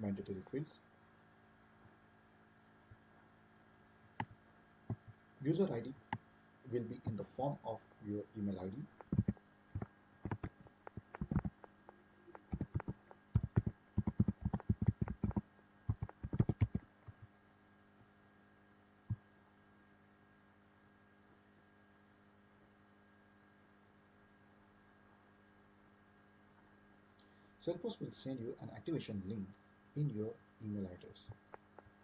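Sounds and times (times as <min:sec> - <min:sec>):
low electrical hum: 0:00.0 - 0:32.0
keyboard typing clicks: 0:09.0 - 0:17.3.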